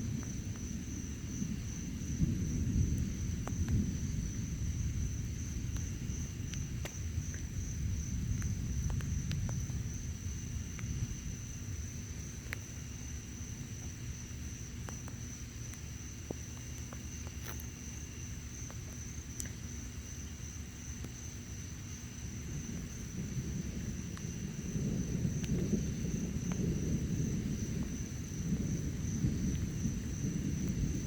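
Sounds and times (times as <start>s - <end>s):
crickets chirring: 0.0s - 31.0s
faint ticks: 2.9s - 3.8s, 5.6s - 7.6s, 8.3s - 9.9s, 12.3s - 12.8s, 13.7s - 19.8s, 23.9s - 27.0s.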